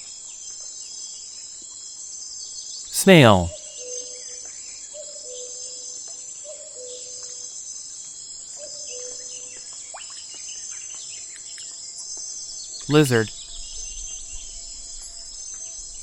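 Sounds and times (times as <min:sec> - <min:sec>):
short low calls: 0:03.0 - 0:03.5, 0:12.9 - 0:13.3.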